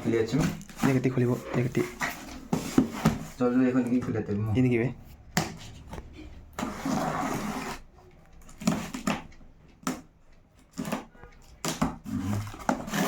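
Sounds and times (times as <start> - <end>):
packaging clicks and knocks: 8.4 - 13.0
packaging scraping rustle: 12.0 - 13.0.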